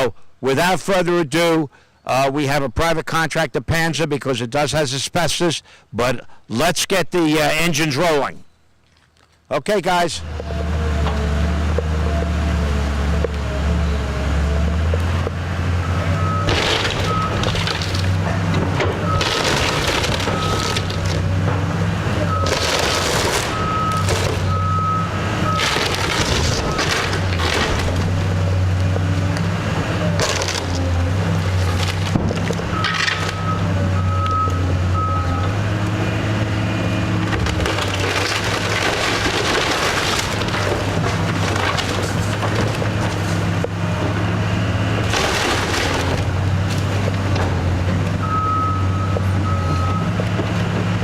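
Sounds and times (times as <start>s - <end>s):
diesel engine running: 10.2s - 51.0s
wood debris crunching and cracking: 16.2s - 33.6s, 37.0s - 44.2s, 44.8s - 51.0s
backup alarm beeping: 32.7s - 35.5s, 48.2s - 50.1s
backup beeper: 48.2s - 50.1s.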